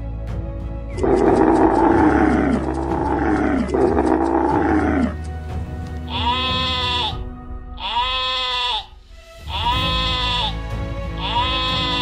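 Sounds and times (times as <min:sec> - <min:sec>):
camel roaring call: 0:01.0 - 0:05.2.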